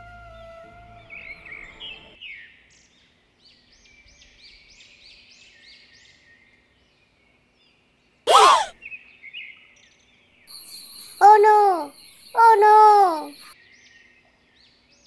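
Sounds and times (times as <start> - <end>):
small bird chirping: 10.5 - 13.6.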